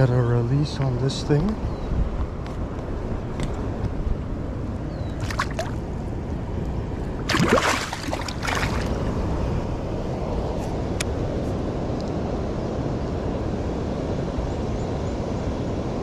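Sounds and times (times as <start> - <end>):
rushing water: 4.8 - 6.4, 7.0 - 9.5
water splashing: 5.1 - 6.0, 7.1 - 9.1.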